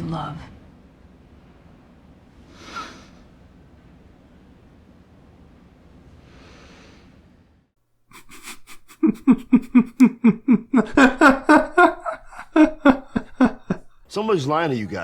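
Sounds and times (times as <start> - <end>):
hearty laughter: 8.1 - 14.1.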